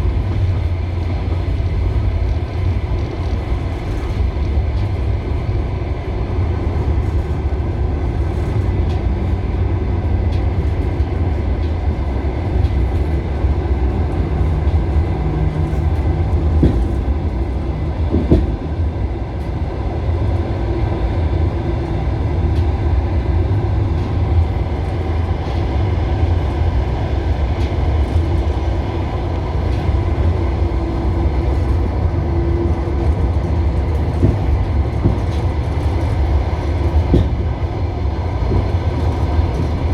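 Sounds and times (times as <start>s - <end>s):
train wheels rumbling on rails: 0.0s - 39.9s
clicks of train wheels: 0.1s - 18.8s, 23.4s - 39.9s.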